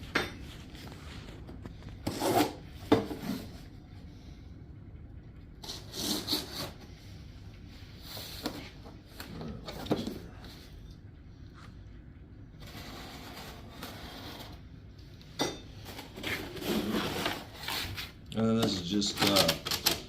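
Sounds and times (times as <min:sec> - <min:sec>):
cardboard scraping and rustling: 0:15.9 - 0:18.2.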